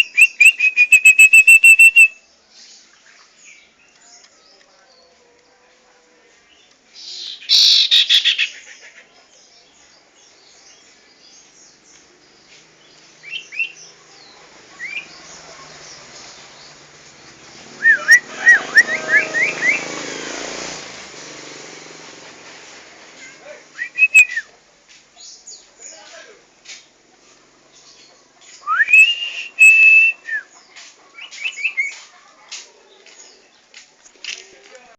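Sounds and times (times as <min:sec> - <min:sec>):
long clear whistles: 0:00.0 - 0:02.2, 0:23.8 - 0:24.5, 0:28.6 - 0:30.4.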